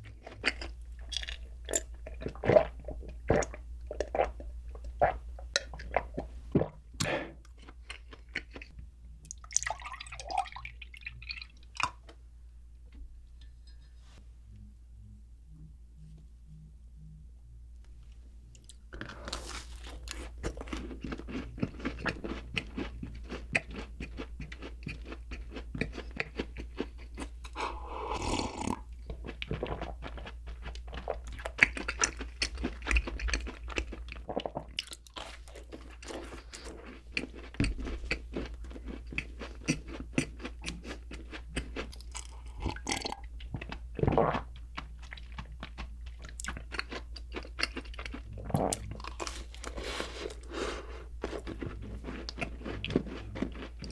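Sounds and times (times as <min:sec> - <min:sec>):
person chewing food: 0:00.0 - 0:12.2, 0:18.5 - 0:53.9.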